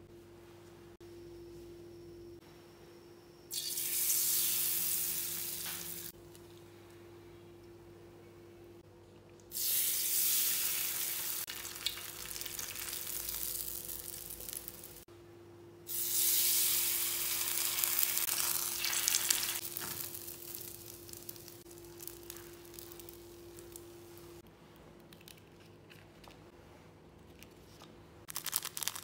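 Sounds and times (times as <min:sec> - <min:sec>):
seaweed sizzling in hot oil: 0:03.5 - 0:06.1, 0:09.5 - 0:15.0, 0:15.9 - 0:24.2.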